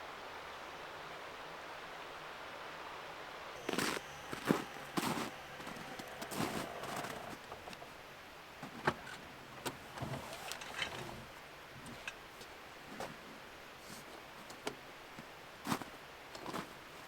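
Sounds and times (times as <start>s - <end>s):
rustling: 3.6s - 8.0s, 8.6s - 17.0s.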